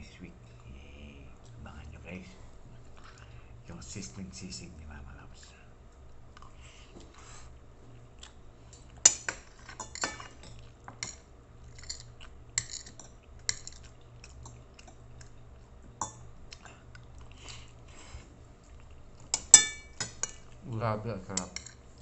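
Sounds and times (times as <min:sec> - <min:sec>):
person chewing: 0:00.5 - 0:03.6, 0:06.0 - 0:10.9, 0:11.6 - 0:19.5
cutlery clinking on plate: 0:09.0 - 0:13.8, 0:19.3 - 0:20.5, 0:21.3 - 0:21.8.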